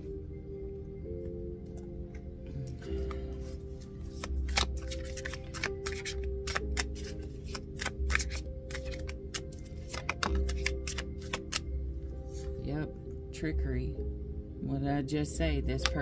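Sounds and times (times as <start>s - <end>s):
soft background music: 0.0s - 16.0s
cards shuffling and flicking: 3.0s - 11.7s.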